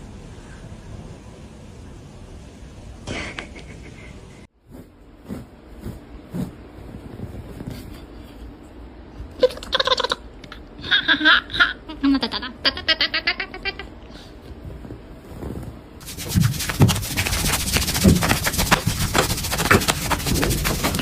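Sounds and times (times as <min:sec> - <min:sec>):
person laughing: 0:03.1 - 0:04.4.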